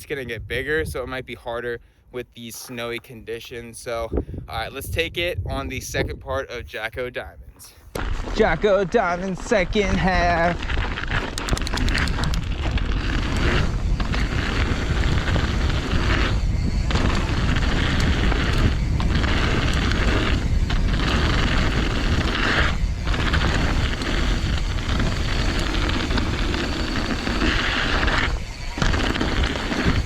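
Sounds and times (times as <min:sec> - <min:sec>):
wind buffeting microphone: 0:00.0 - 0:01.6, 0:03.6 - 0:30.0
bike tyres rumbling on dirt: 0:08.0 - 0:30.0.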